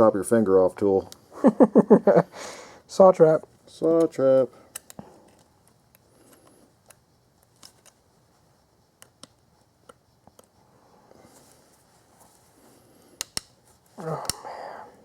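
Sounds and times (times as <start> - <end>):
faint metallic clicks of tools: 13.1 - 13.6.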